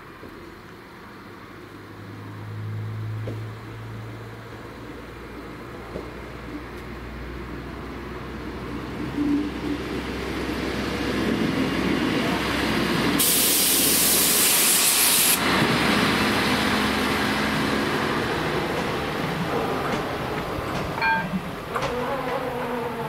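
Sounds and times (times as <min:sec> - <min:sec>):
diesel train passing on rails: 0:00.0 - 0:23.0
loud hissing burst: 0:13.2 - 0:15.4.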